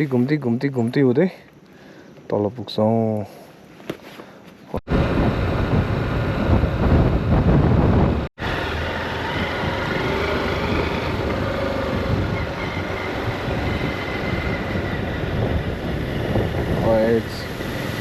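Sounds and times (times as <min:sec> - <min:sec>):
road noise: 0:04.8 - 0:18.0
wind buffeting microphone: 0:04.9 - 0:18.0
motorcycle engine running: 0:05.0 - 0:18.0.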